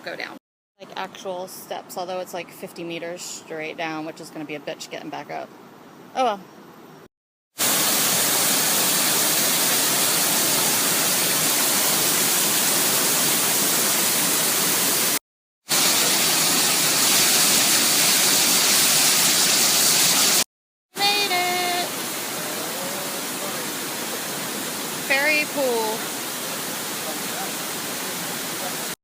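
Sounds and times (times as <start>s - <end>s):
waterfall rushing: 7.6s - 20.4s, 21.0s - 29.0s.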